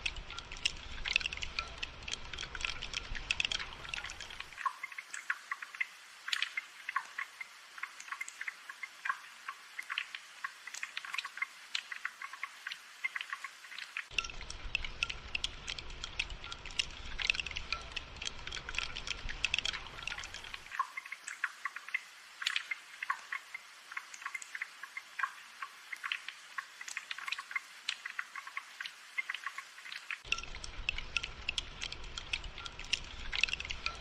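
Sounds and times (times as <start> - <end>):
rain drops ticking: 0.0 - 34.0.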